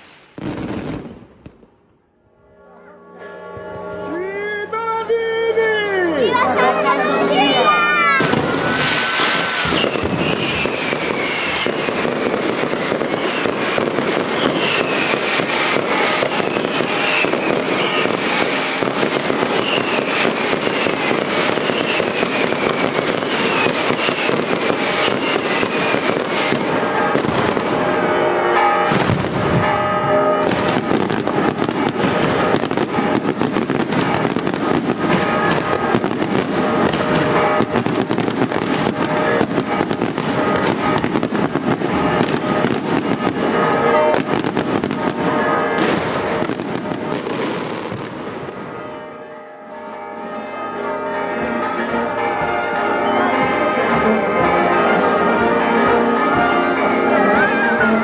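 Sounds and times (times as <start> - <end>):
fireworks bangs and crackling: 0.0 - 2.0, 6.2 - 58.0
whistling firework shells: 8.2 - 27.6.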